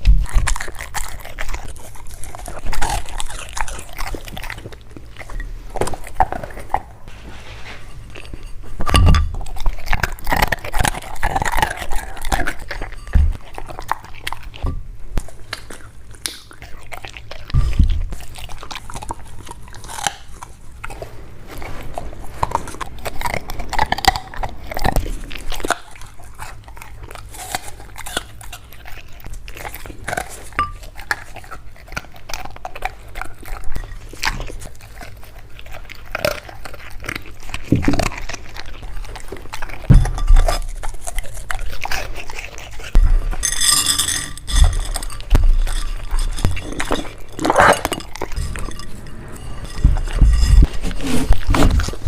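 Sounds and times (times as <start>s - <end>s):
dog chewing and crunching food: 0.0s - 52.0s
heavier thumps: 49.7s - 50.9s.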